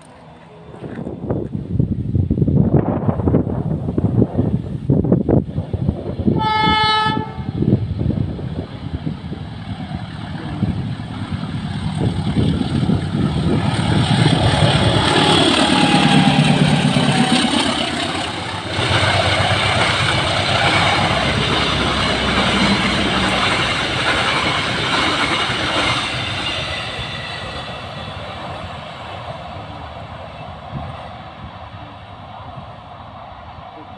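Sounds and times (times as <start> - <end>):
diesel locomotive passing: 0.0 - 33.9
train carriages rolling on rails: 7.6 - 33.9.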